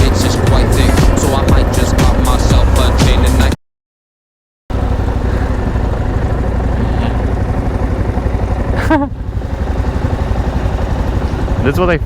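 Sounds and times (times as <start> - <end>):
motorcycle engine running: 0.0 - 3.6, 4.7 - 12.0.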